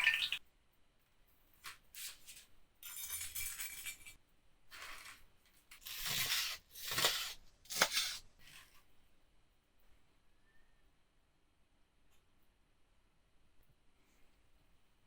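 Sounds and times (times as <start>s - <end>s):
kitchen clinks and scrapes: 2.1s - 8.8s.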